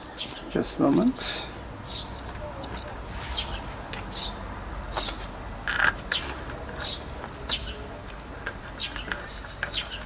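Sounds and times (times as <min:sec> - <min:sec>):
small bird chirping: 0:08.8 - 0:10.0.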